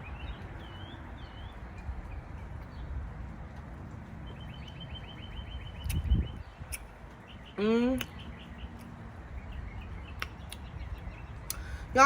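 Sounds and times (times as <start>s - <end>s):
songbird chirp: 0.0s - 12.0s.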